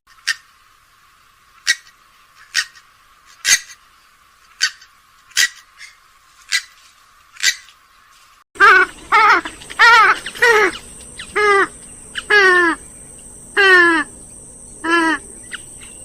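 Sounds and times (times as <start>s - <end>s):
swamphen short sharp calls: 1.6s - 3.8s, 4.5s - 6.8s, 7.4s - 7.7s, 8.6s - 14.2s, 14.8s - 16.0s.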